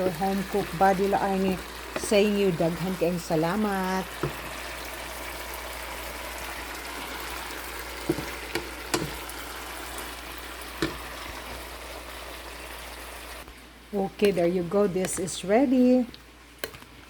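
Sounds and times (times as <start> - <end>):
food sizzling in a pan: 0.0 - 13.5
utensil knocking against pan: 4.2 - 4.4, 8.0 - 9.2.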